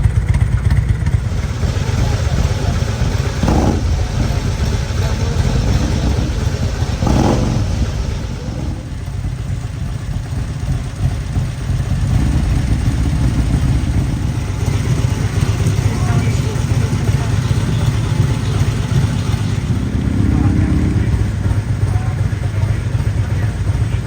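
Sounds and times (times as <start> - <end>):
motorcycle engines rumbling: 0.0 - 24.0.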